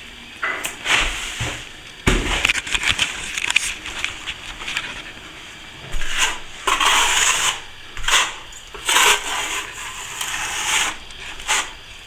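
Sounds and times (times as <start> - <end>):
trowel scraping wet plaster: 5.9 - 11.8.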